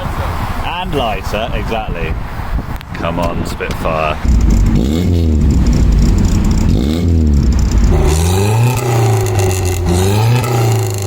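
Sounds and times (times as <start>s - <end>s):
car engine accelerating hard: 4.2s - 11.0s.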